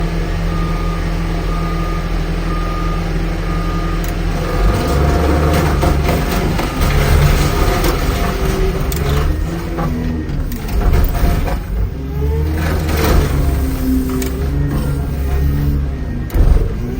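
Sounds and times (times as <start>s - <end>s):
diesel engine running: 0.0s - 16.9s
reversing alarm beeping: 0.5s - 5.0s, 13.2s - 16.9s
metal cracking and creaking: 4.3s - 16.9s.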